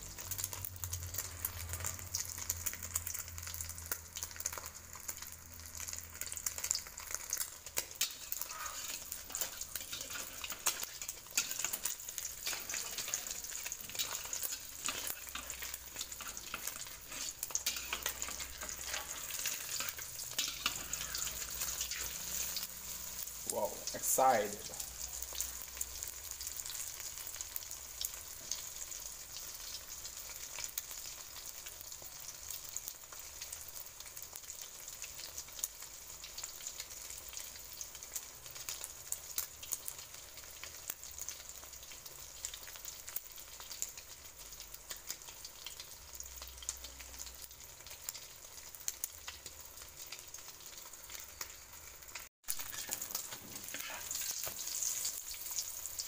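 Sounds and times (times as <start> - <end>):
spitting oil crackles: 0.0 - 27.2, 51.2 - 56.0
egg deep-frying in hot oil: 0.0 - 56.0
spatula scraping in wok: 7.7 - 23.4, 52.5 - 55.9.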